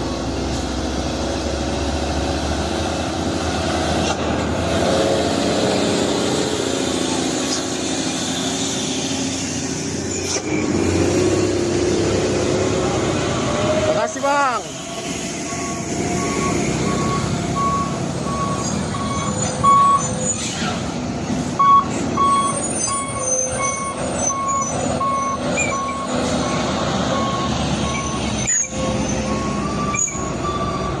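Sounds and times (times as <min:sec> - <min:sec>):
heavy truck engine running: 0:00.0 - 0:31.0
electronic warning beeper: 0:15.4 - 0:20.1.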